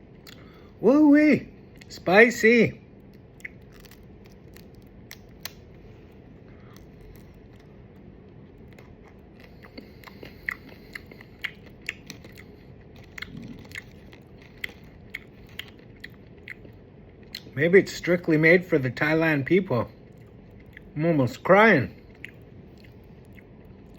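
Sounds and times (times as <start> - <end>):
person chewing crunchy snack: 3.0 - 5.7, 6.4 - 17.6, 20.0 - 21.0, 21.9 - 23.9.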